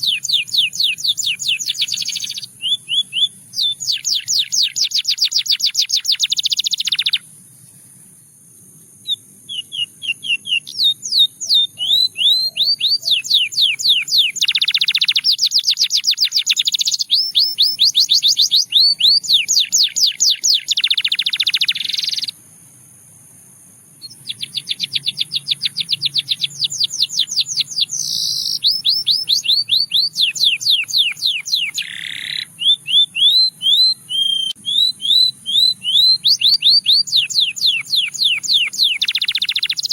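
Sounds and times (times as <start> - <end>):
canary singing trills: 0.0 - 8.2, 8.9 - 22.7, 24.0 - 39.9.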